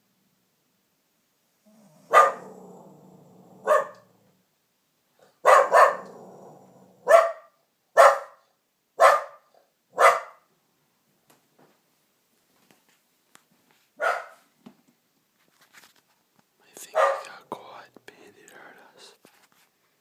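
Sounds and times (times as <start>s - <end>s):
dog barking: 2.0s - 2.7s, 3.6s - 4.1s, 5.2s - 6.4s, 7.0s - 10.5s, 14.0s - 14.5s, 16.8s - 17.3s.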